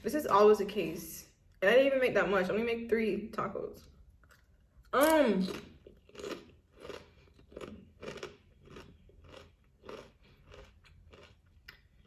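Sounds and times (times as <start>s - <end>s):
person chewing food: 5.5s - 12.0s.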